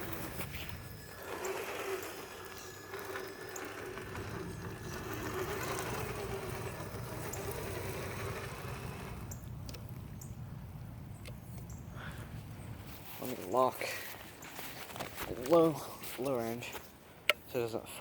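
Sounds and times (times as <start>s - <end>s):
electric motor and gearbox whining: 0.0s - 10.1s.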